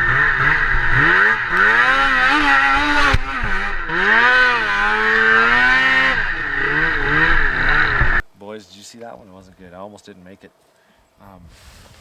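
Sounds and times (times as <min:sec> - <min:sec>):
snowmobile engine revving: 0:00.0 - 0:08.2.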